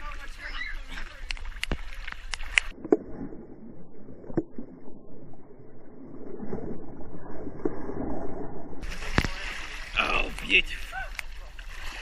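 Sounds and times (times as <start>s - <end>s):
muffled underwater water wash: 0.0s - 12.0s.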